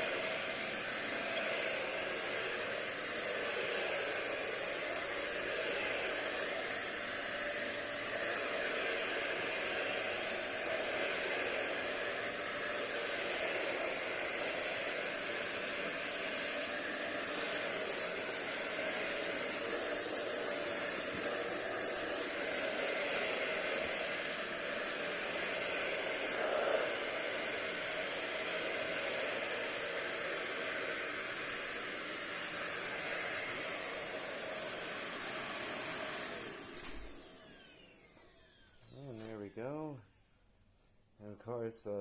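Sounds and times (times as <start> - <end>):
vacuum cleaner running: 0.0 - 40.0.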